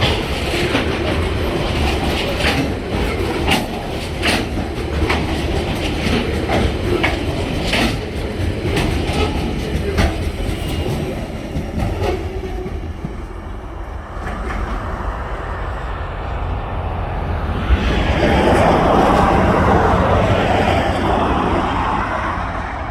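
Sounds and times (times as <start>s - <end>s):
train wheels clattering over joints: 0.0s - 15.1s
road vehicle noise: 12.6s - 22.9s.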